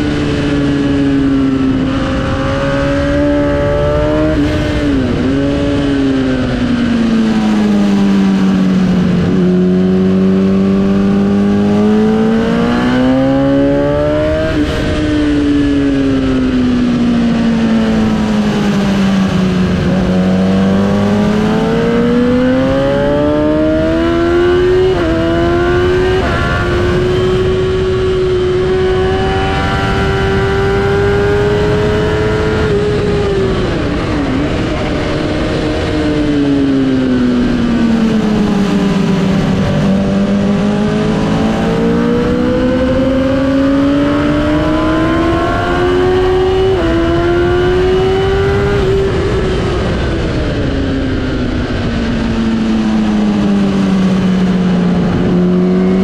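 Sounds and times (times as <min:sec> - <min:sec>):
wind rush: 0:00.0 - 0:56.0
sport bike engine revving: 0:00.3 - 0:06.7, 0:18.1 - 0:50.0.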